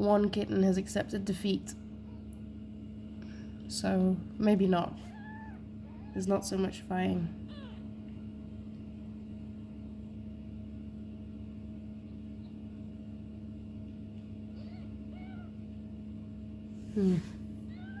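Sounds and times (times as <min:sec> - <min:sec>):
kittens mewing: 0:05.0 - 0:06.4, 0:07.4 - 0:08.1, 0:14.5 - 0:15.7, 0:17.0 - 0:18.0
cat meow: 0:05.1 - 0:06.2, 0:14.6 - 0:15.5, 0:17.7 - 0:18.0.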